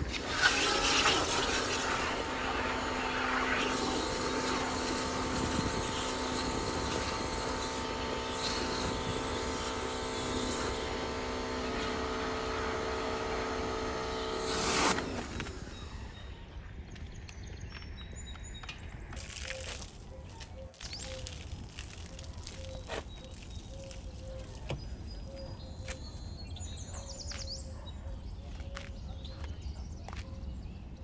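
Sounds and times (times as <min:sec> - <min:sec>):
cleaning machine motor whine: 0:00.0 - 0:16.8.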